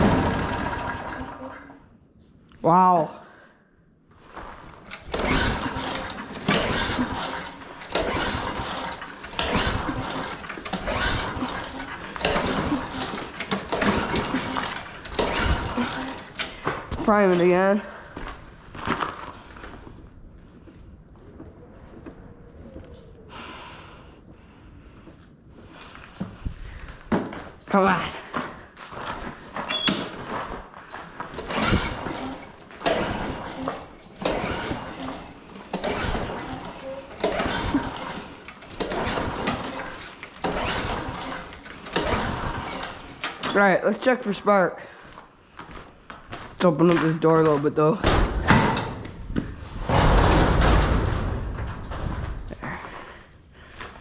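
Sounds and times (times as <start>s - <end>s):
lawn mower engine pull-starting: 0.0s - 1.9s, 4.2s - 19.9s, 27.7s - 44.5s.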